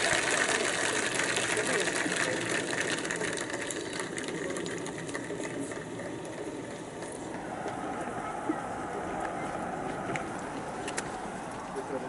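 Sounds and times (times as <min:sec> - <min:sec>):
crowd clapping: 0:00.0 - 0:06.6.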